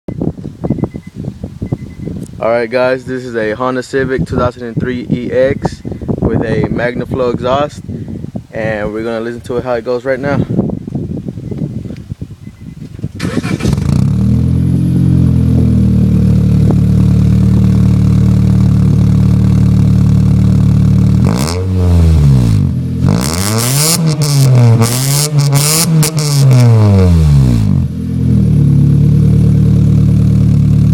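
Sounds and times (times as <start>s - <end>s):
car engine idling and revving: 13.2s - 30.9s.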